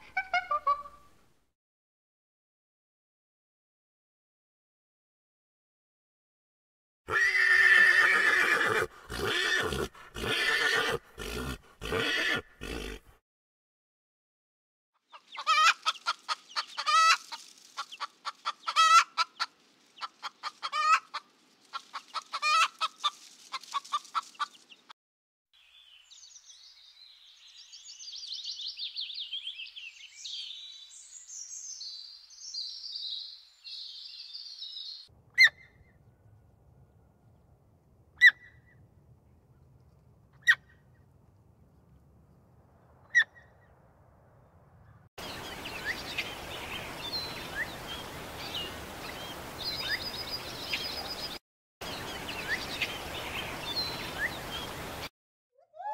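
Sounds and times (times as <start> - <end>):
loud animal call: 7.1 - 13.2.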